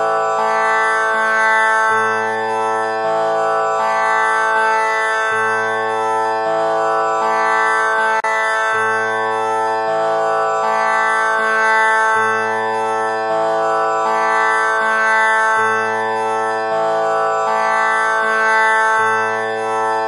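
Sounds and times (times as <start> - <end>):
tanpura drone: 0.0 - 20.0.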